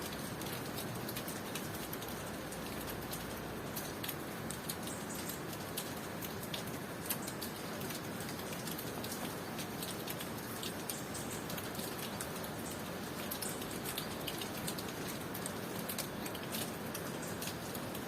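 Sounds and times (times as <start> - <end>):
steady rain falling: 0.0 - 18.0
ticks of raindrops landing: 0.0 - 18.0.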